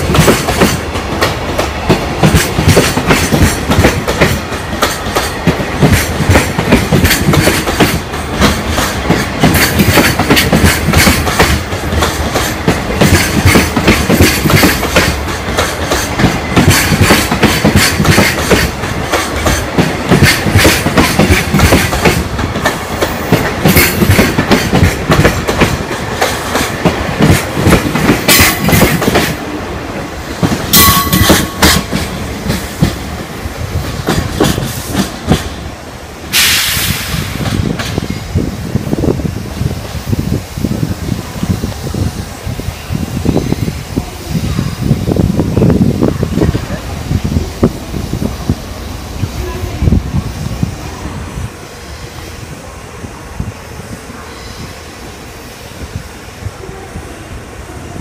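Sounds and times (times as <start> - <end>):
train wheels clattering over rail joints: 0.0 - 35.7, 36.3 - 39.0.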